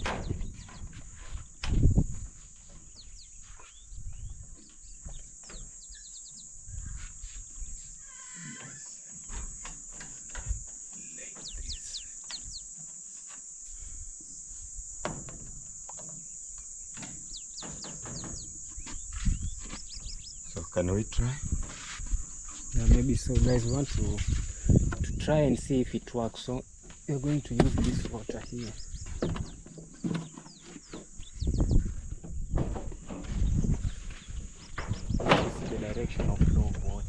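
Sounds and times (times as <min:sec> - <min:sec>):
high insect drone: 0:00.0 - 0:37.0.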